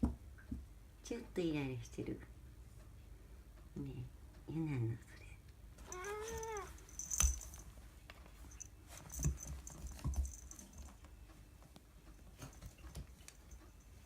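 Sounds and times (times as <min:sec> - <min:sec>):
cat meowing: 0:05.9 - 0:06.8.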